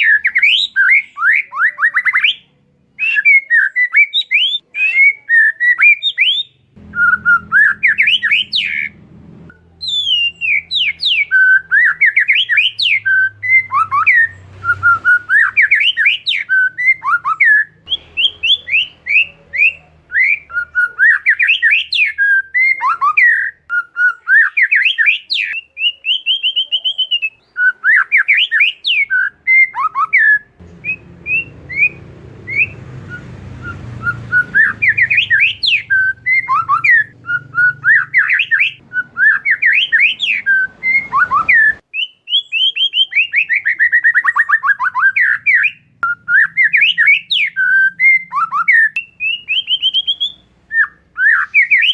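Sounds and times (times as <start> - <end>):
bird singing whistled phrases: 0.0 - 51.9
faint low hum: 6.6 - 15.4, 30.6 - 41.8.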